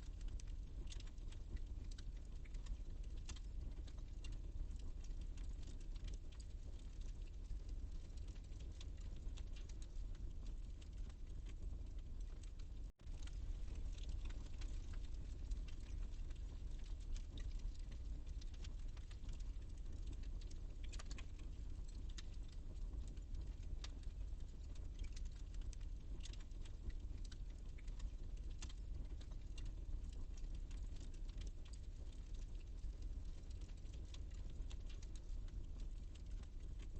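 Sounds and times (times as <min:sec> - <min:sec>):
fire crackling and popping: 0:00.0 - 0:36.9
low rumble of flames: 0:00.0 - 0:36.9.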